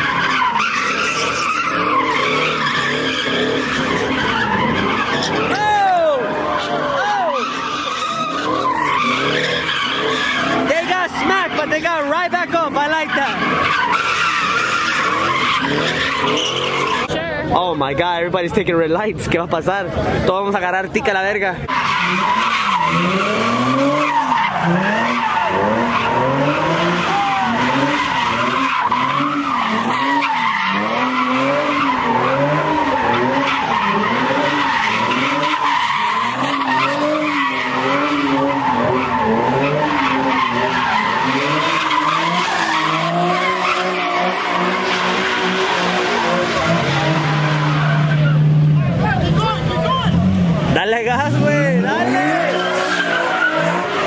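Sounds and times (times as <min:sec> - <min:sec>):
car engine revving: 0:00.0 - 0:17.2, 0:21.6 - 0:54.0
tyres screeching: 0:00.0 - 0:17.2, 0:21.6 - 0:54.0.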